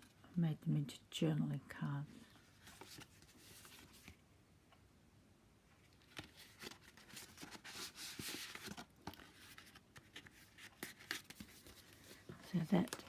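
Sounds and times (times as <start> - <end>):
paper and card rustling: 2.2 - 4.2, 5.8 - 13.0.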